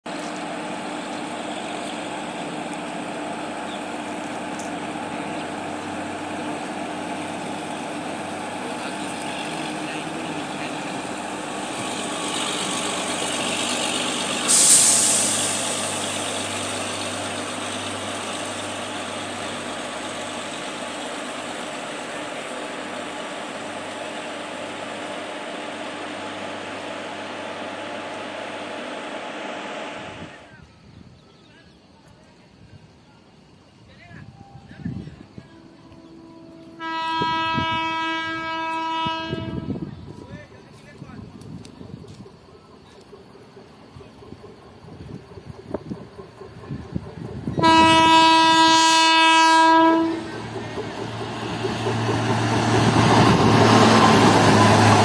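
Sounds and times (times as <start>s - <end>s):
train rumbling past: 0.1s - 55.0s
sudden loud hiss: 11.7s - 20.1s.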